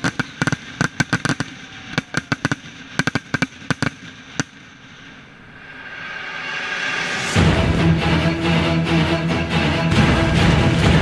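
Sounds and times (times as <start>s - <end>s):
firework shells bursting: 0.0s - 5.4s.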